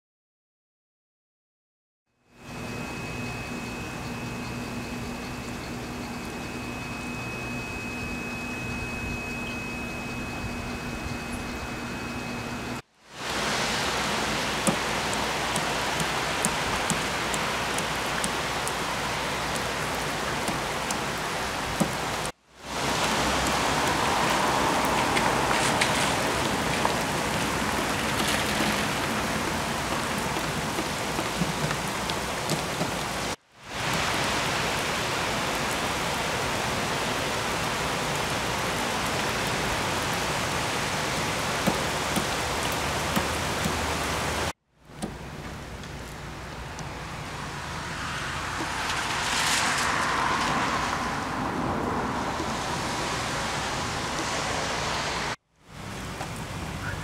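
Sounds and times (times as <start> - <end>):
heavy rain on pavement: 12.7 - 57.0.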